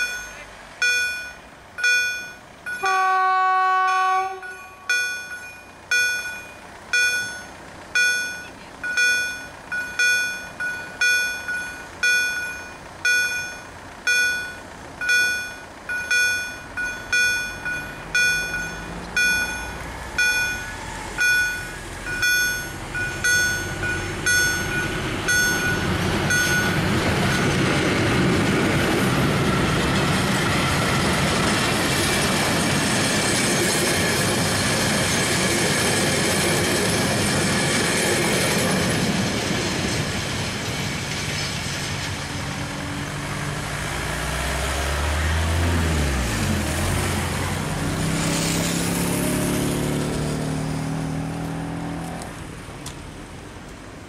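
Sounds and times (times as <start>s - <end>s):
level-crossing warning beeps: 0.0s - 3.1s, 3.9s - 27.8s
train wheels on rails: 0.0s - 3.2s, 3.8s - 54.0s
road vehicle engine pulling away: 4.4s - 54.0s.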